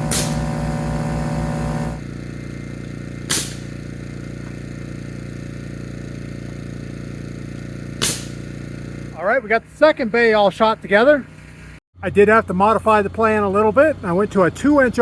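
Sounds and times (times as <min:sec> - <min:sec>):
nail gun shot: 0:00.0 - 0:02.0, 0:03.2 - 0:04.0, 0:07.9 - 0:08.6
motor humming: 0:00.0 - 0:09.2.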